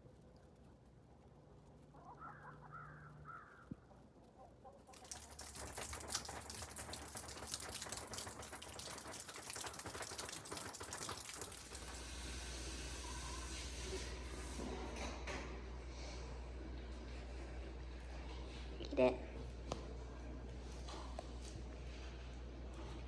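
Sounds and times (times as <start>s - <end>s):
dense crackling clicks: 0.0s - 12.0s.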